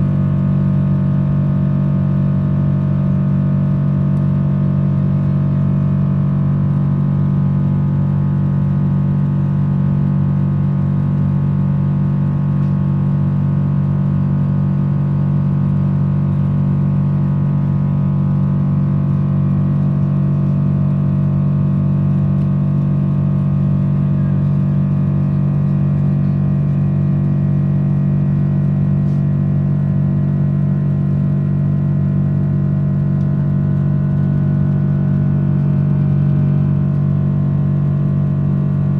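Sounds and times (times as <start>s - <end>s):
airplane cabin engine drone: 23.1s - 38.9s.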